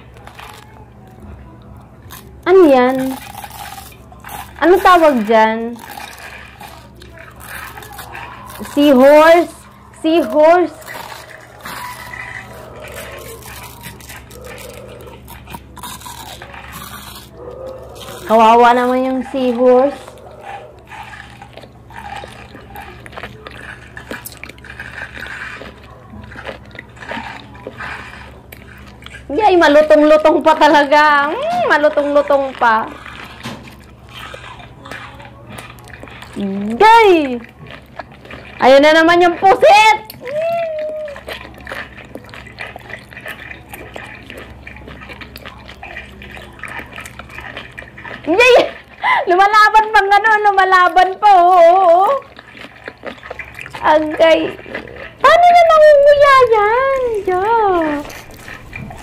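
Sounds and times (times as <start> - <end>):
low steady hum: 0.0 - 59.0
wet chewing and slurping: 0.0 - 59.0.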